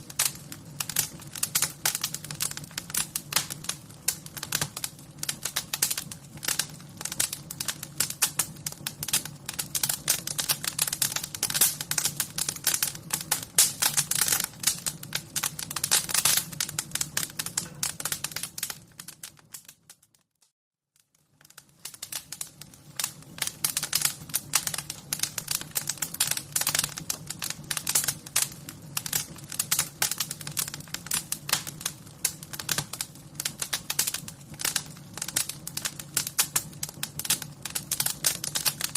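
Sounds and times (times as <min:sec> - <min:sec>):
fire crackling and popping: 0:00.0 - 0:20.4, 0:21.0 - 0:38.9.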